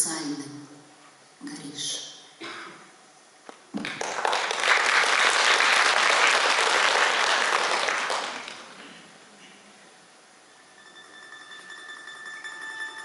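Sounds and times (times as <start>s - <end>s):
audience applauding: 3.8s - 8.8s.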